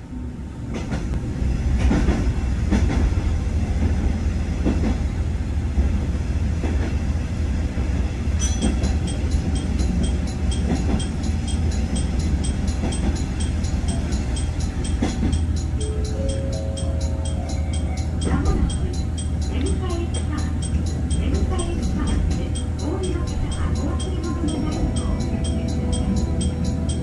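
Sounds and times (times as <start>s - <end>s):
train rumble in tunnel: 0.0s - 27.0s
light even ticking: 8.4s - 27.0s
wheels clacking over rail joints: 8.4s - 27.0s.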